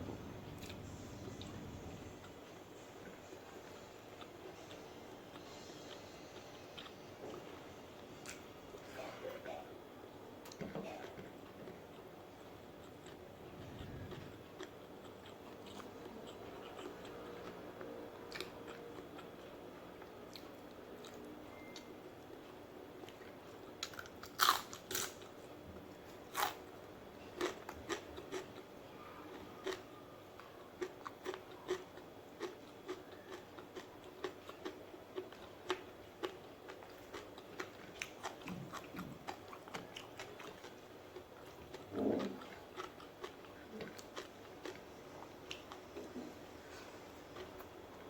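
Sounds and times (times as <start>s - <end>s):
crunchy food being bitten: 23.8s - 25.3s, 26.3s - 26.6s, 29.3s - 47.7s
chewing clicks: 30.8s - 40.8s.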